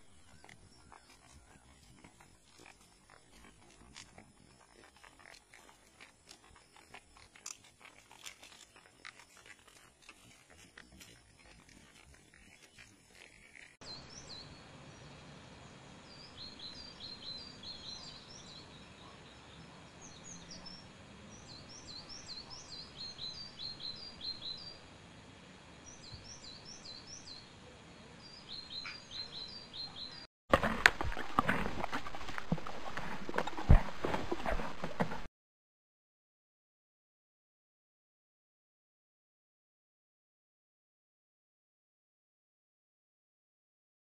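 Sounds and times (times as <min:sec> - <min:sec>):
small birds chirping: 0:00.0 - 0:25.0, 0:25.7 - 0:30.3
faint outdoor hiss: 0:00.0 - 0:30.2.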